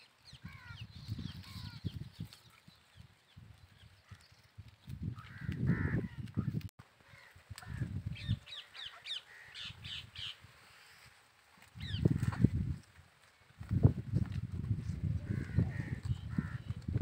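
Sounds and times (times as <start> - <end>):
birds calling: 0.1 - 11.1, 15.3 - 16.9.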